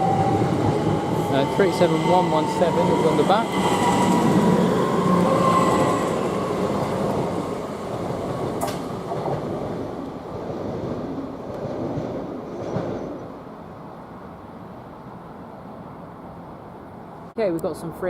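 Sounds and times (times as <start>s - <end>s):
train rail noise: 0.0s - 17.1s.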